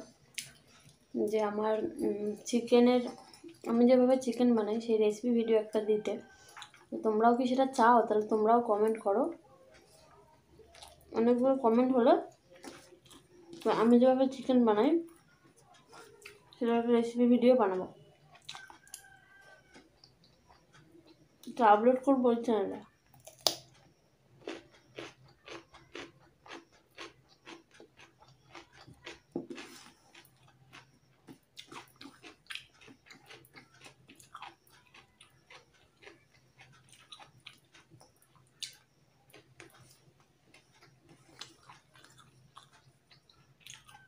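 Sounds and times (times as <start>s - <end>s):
chewing crunchy food: 0.0s - 4.8s, 5.9s - 7.1s, 7.7s - 16.9s, 17.6s - 21.6s, 22.6s - 44.0s.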